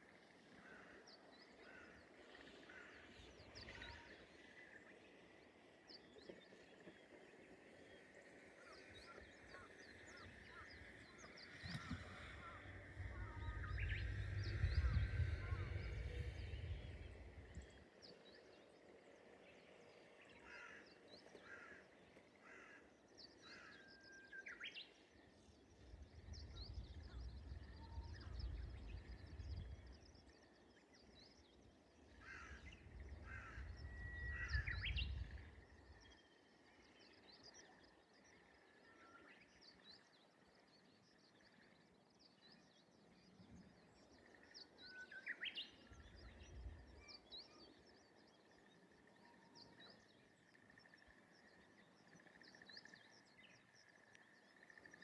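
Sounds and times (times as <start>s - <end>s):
small birds twittering: 0.0s - 55.0s
warbler singing whistled song: 8.6s - 19.7s, 23.5s - 55.0s
low rumble: 11.6s - 17.8s, 25.8s - 30.2s.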